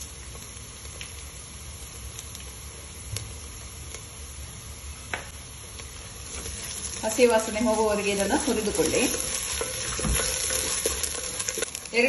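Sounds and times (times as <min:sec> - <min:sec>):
onions sizzling in a pot: 0:00.0 - 0:12.0.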